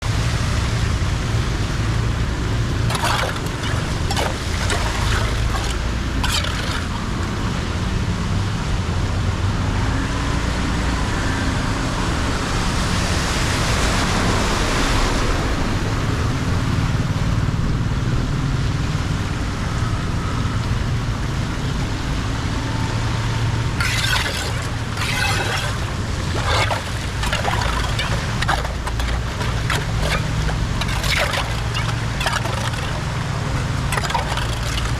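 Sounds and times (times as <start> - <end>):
water flowing and sloshing: 2.7 - 7.6, 23.8 - 34.9.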